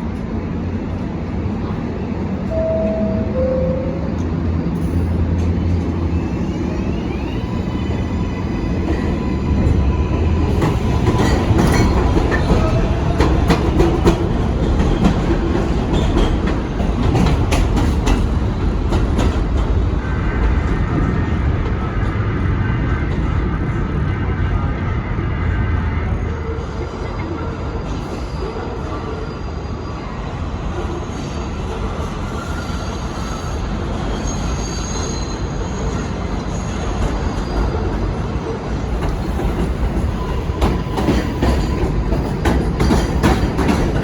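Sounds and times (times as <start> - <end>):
train wheels rumbling on rail: 0.0 - 44.0
faint high wheel squeal: 30.9 - 37.8
clacks over rail joints: 39.0 - 44.0.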